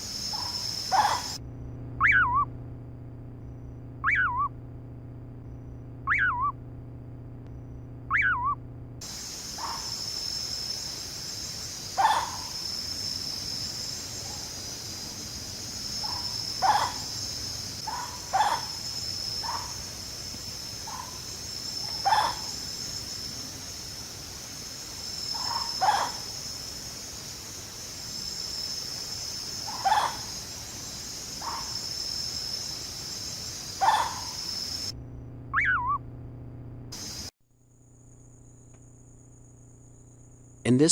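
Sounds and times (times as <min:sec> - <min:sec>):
high insect chorus: 0:00.0 - 0:01.4, 0:09.0 - 0:34.9, 0:37.0 - 0:40.9
owl whistled call: 0:00.0 - 0:01.4, 0:02.0 - 0:02.4, 0:04.0 - 0:04.5, 0:06.1 - 0:06.5, 0:08.1 - 0:34.9, 0:35.6 - 0:36.0
short bird calls: 0:00.0 - 0:01.4, 0:08.1 - 0:28.6, 0:29.4 - 0:34.9.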